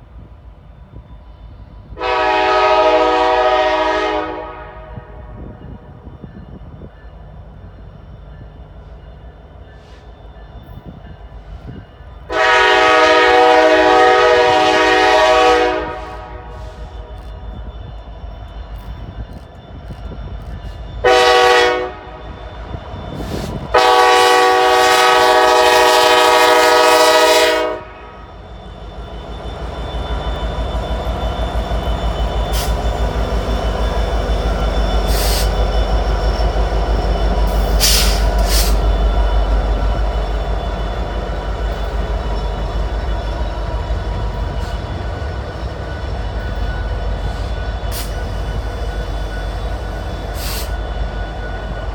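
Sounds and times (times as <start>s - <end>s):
train engine and wheel rumble: 0.0s - 51.9s
locomotive air horn: 2.0s - 5.6s, 12.3s - 17.3s, 21.0s - 22.4s, 23.4s - 28.4s, 32.5s - 32.8s, 37.5s - 38.9s
high wheel squeals: 21.9s - 23.8s, 28.1s - 51.9s.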